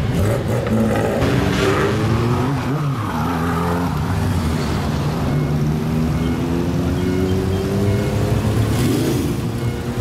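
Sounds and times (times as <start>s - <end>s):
car engine revving and running: 0.0s - 10.0s.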